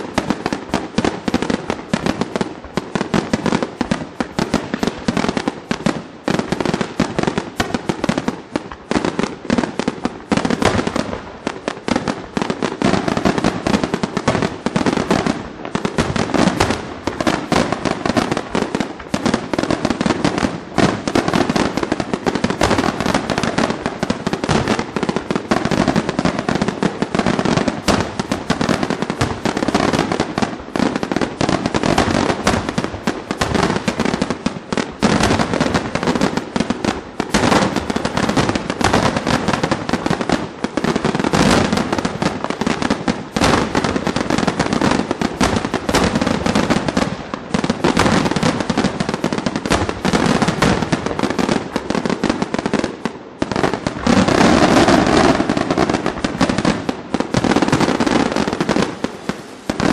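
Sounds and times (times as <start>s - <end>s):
firework crackling: 0.0s - 59.9s.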